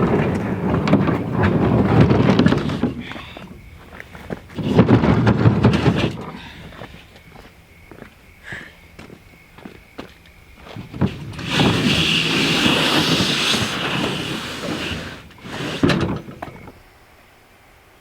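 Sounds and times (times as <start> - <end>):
kayak hull scraping: 0.0 - 7.1, 10.7 - 16.8.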